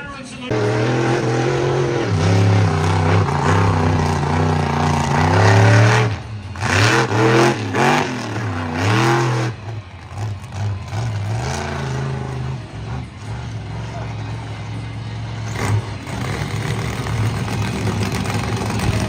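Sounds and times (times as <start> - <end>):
monster truck engine revving: 0.5 - 19.0.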